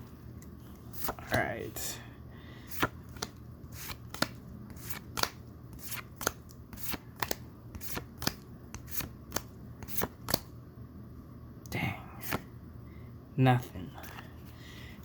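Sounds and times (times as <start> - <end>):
trading cards snapping: 2.7 - 10.5.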